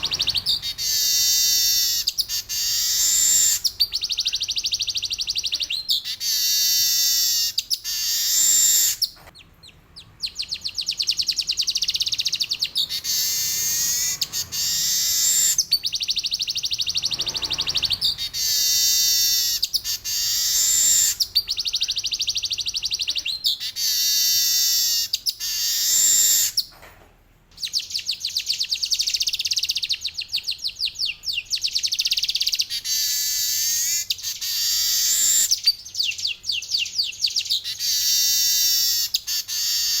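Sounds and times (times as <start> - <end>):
bird singing buzzy rolls: 0.0 - 24.0.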